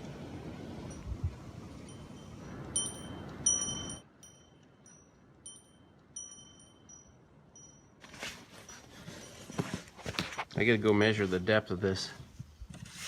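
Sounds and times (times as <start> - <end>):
wind chime ringing: 1.8 - 8.0.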